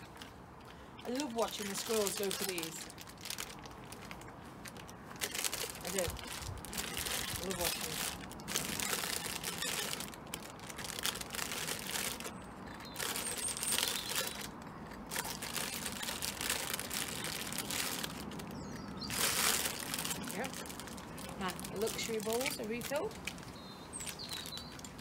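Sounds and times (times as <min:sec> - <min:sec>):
packets crinkling and rustling: 0:01.0 - 0:25.0
wind buffeting microphone: 0:04.3 - 0:09.4.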